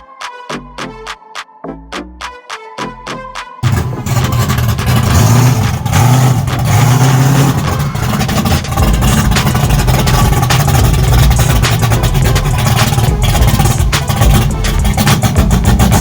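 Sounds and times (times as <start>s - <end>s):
loud car engine running: 3.6s - 16.0s.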